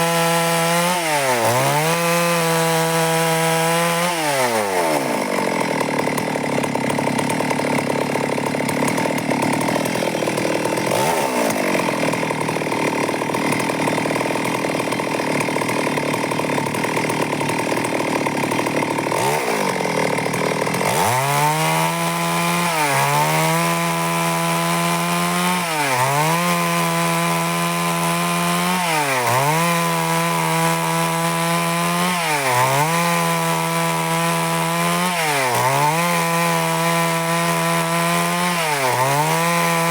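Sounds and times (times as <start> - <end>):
chainsaw chain cutting wood: 0.0 - 39.9
chainsaw engine running: 0.0 - 39.9.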